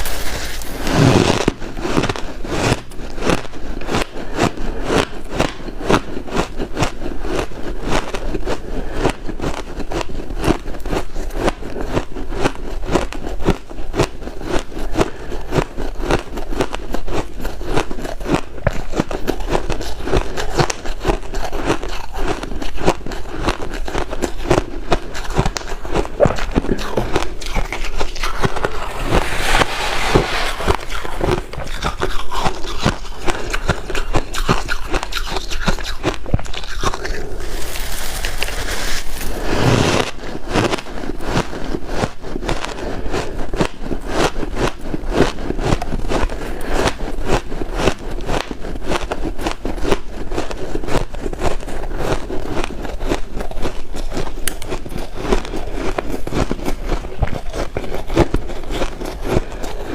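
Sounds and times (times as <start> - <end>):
ice crunching: 0.0 - 6.0, 17.4 - 42.6.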